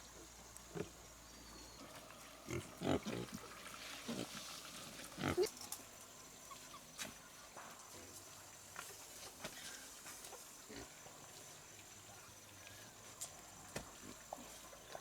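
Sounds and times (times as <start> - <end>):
pigs grunting: 2.4 - 3.4, 5.1 - 5.6.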